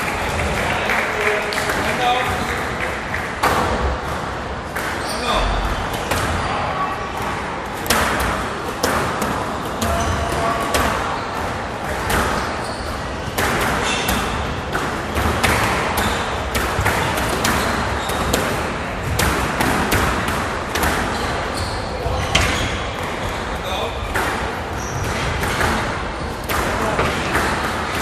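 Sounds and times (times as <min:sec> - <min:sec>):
squash ball hits: 0:03.2 - 0:06.6, 0:07.2 - 0:28.0
shoes squeaking on court floor: 0:04.8 - 0:05.6, 0:09.5 - 0:19.2, 0:20.8 - 0:24.1, 0:24.7 - 0:26.4.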